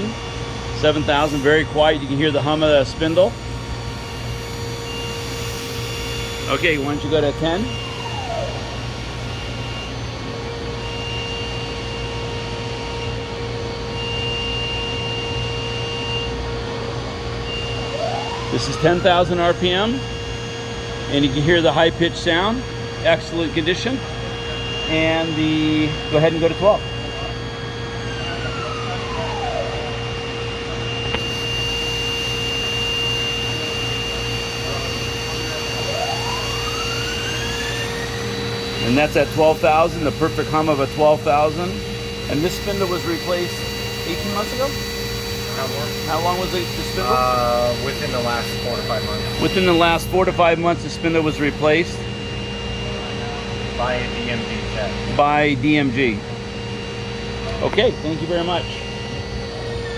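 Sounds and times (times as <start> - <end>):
machine spindle humming: 0.0 - 59.9
faint high-pitched tone: 23.0 - 56.1.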